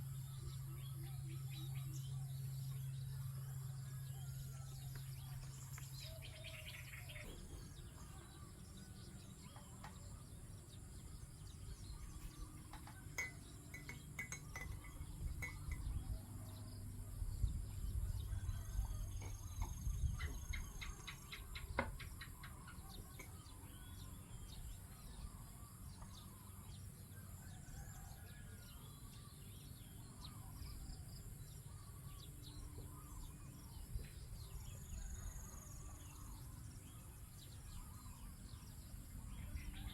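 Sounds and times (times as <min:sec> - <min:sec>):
small birds chirping: 0:04.8 - 0:27.9.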